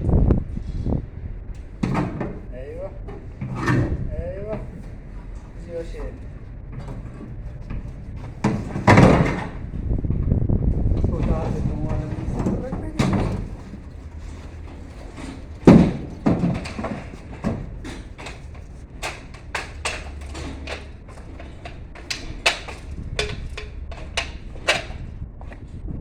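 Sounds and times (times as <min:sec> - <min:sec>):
low steady hum: 0:00.0 - 0:26.0
knocks and clicks from handwork: 0:11.9 - 0:25.6.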